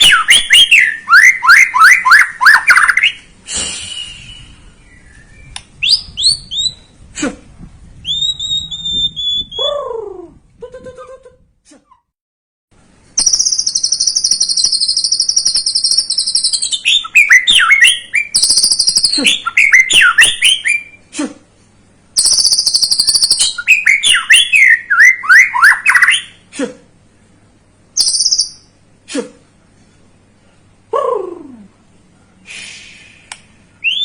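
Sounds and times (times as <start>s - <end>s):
bird whistled notes: 3.9s - 6.9s, 8.0s - 9.7s, 28.0s - 28.7s, 33.8s - 34.0s
bird singing buzzing trills: 13.2s - 20.9s.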